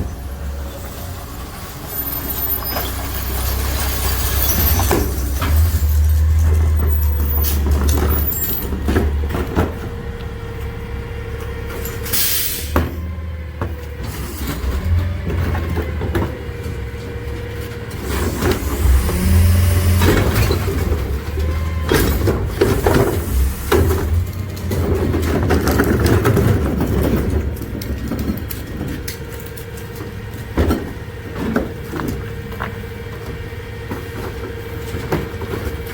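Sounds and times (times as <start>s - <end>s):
garbage truck engine rumbling: 0.0s - 35.9s
knocks and clanks: 2.3s - 10.2s, 11.4s - 35.9s
hydraulic whine: 17.9s - 24.4s.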